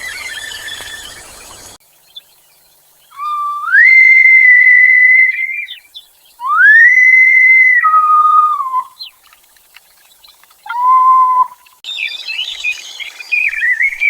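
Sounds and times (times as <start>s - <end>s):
high whistle-like calls: 0.0s - 1.8s, 3.1s - 9.2s, 10.6s - 14.0s.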